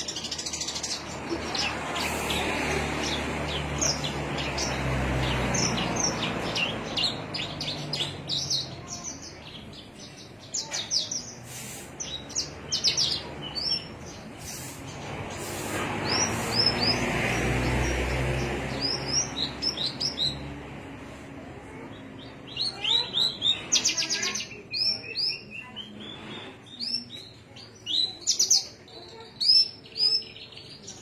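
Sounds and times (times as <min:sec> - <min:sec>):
songbird chirping: 0:00.0 - 0:21.2.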